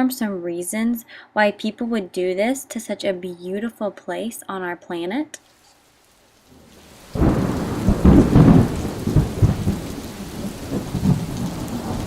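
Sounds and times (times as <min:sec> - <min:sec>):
steady rain: 0:05.4 - 0:12.0
thunderclap rumbling: 0:06.5 - 0:12.0.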